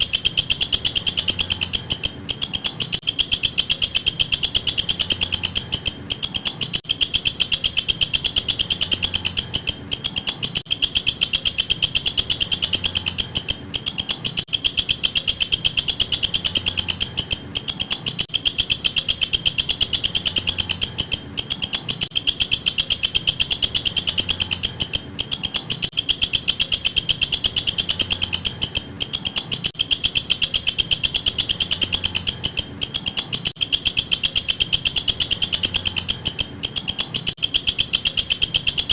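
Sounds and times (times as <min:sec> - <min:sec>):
katydid stridulating: 0:00.0 - 0:38.9.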